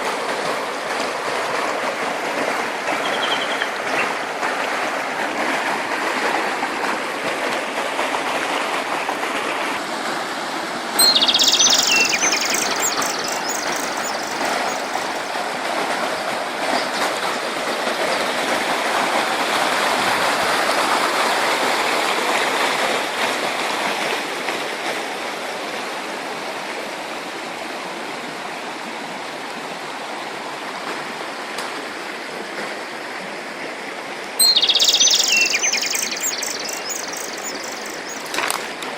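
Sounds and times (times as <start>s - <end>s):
stream water rushing: 0.0s - 38.9s
birds chirping: 11.0s - 15.3s, 34.4s - 38.9s.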